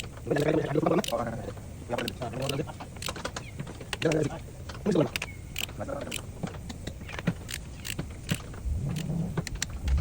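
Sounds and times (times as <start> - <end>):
hand tools clicking and knocking: 0.0 - 10.0
steady low rumble: 7.7 - 10.0.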